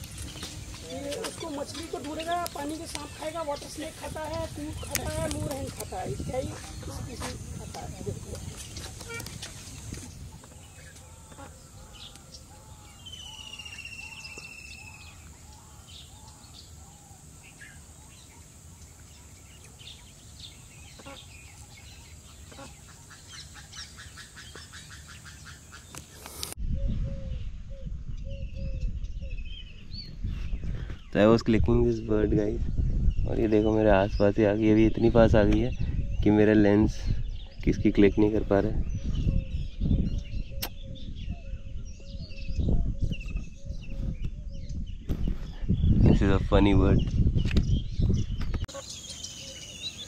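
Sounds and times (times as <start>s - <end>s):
wild birds calling and chirping: 0.0s - 50.0s
low bird call notes: 8.8s - 9.6s.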